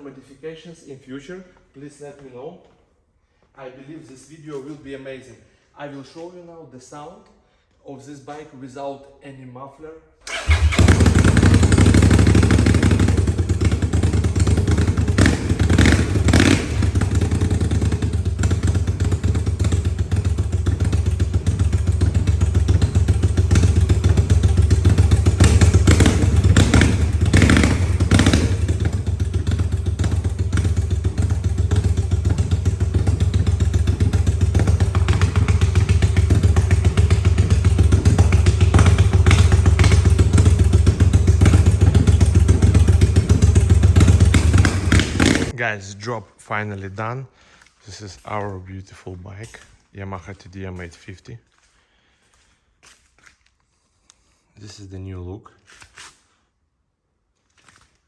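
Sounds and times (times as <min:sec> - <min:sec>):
motorcycle engine idling loud: 0:10.3 - 0:45.5.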